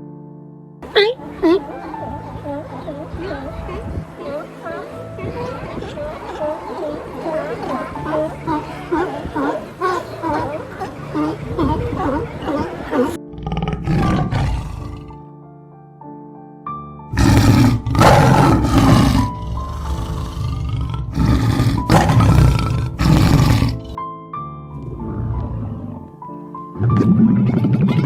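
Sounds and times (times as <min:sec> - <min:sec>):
background music: 0:00.0 - 0:28.0
large animal roaring: 0:06.4 - 0:15.2, 0:17.1 - 0:24.0.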